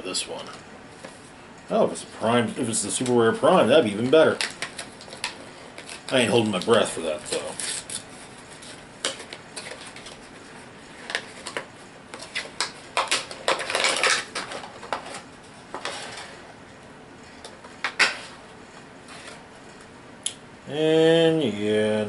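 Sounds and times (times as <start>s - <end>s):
packaging rustling: 2.8s - 16.4s.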